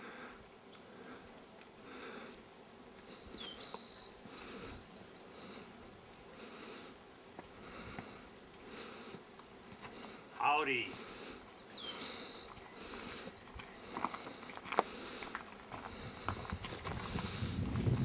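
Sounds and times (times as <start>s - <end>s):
insects buzzing: 0.0s - 17.6s.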